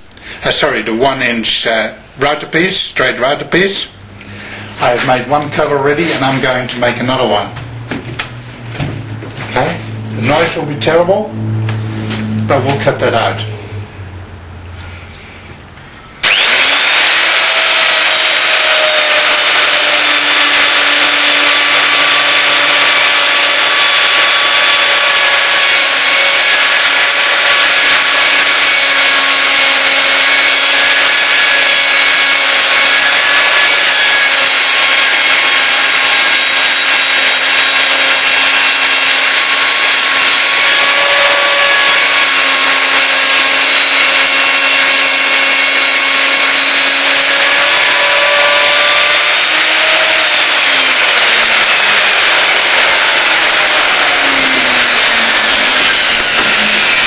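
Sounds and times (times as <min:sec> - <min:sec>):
router whining and cutting: 0:16.2 - 0:57.0.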